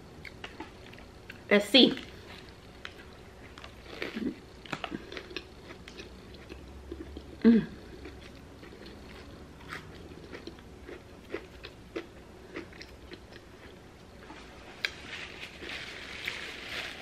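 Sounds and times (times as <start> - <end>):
chewing with wet crunches: 2.1 - 15.0.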